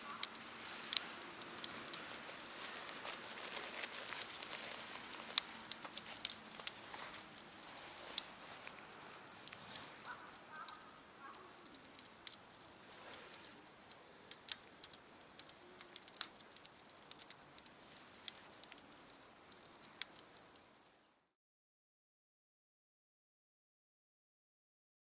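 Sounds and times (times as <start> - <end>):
campfire crackling and popping: 0.0 - 21.3
faint hiss: 0.0 - 21.3
faint bird call: 9.7 - 11.8.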